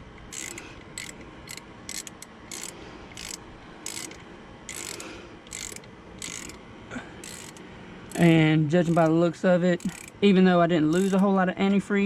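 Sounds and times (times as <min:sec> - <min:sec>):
socket ratchet clicking: 0:00.2 - 0:06.6, 0:07.2 - 0:08.2, 0:08.8 - 0:09.2, 0:09.8 - 0:10.2, 0:10.9 - 0:11.2.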